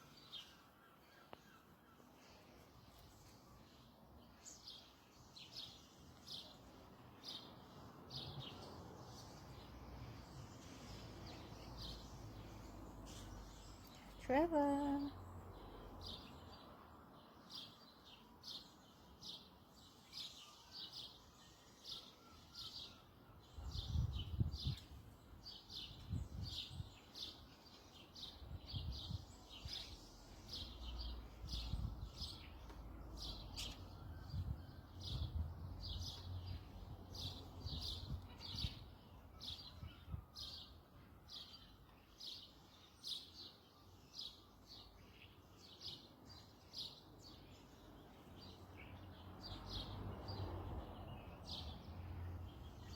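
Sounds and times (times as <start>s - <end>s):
small bird chirping: 19.8s - 40.8s.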